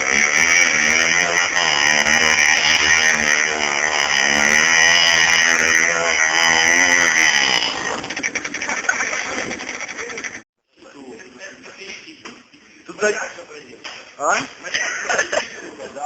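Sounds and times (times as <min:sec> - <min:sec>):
motorcycle engine under load: 0:00.0 - 0:10.5.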